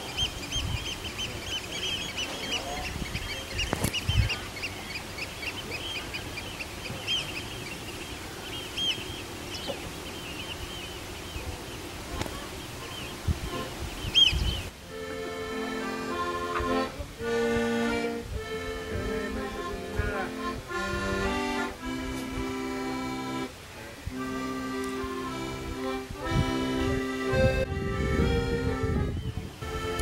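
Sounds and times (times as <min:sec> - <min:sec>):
flock of birds calling: 0:00.0 - 0:14.7
low wind rumble: 0:00.0 - 0:14.9, 0:23.6 - 0:30.0.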